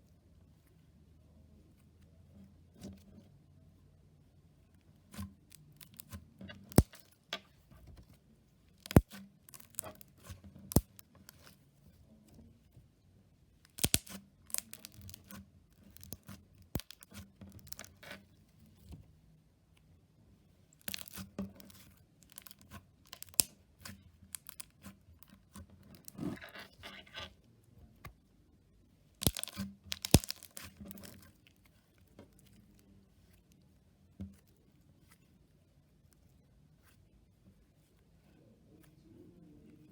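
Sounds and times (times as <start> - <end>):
slime popping and crackling: 6.7 - 7.1, 8.8 - 10.1, 10.7 - 11.0, 13.7 - 15.3, 15.9 - 17.9, 20.8 - 21.2, 22.2 - 23.5, 29.2 - 31.2.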